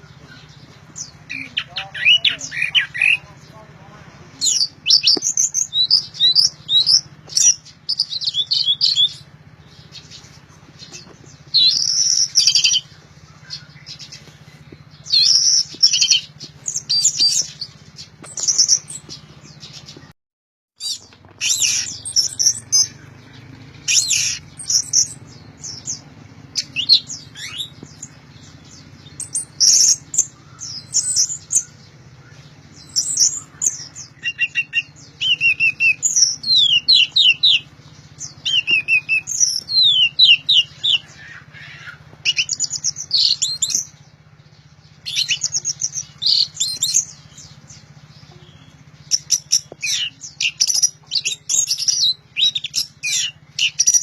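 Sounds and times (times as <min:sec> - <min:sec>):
thrush singing: 0:20.8 - 0:54.0.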